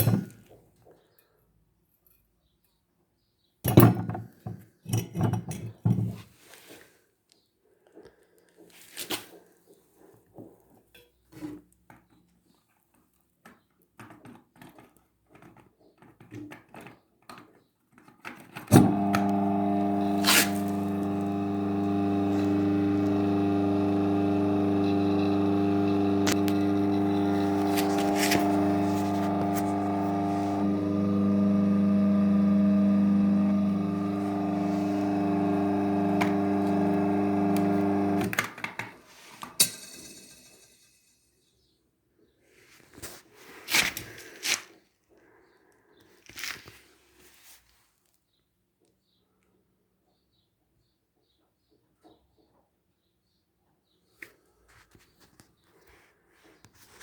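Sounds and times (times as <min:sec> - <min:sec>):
electric motor humming: 0:18.8 - 0:38.4.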